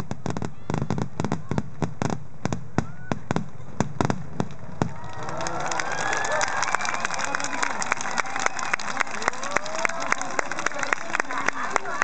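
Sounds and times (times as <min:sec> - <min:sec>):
fireworks bursting: 0:00.0 - 0:05.2
crowd voices: 0:04.9 - 0:12.0.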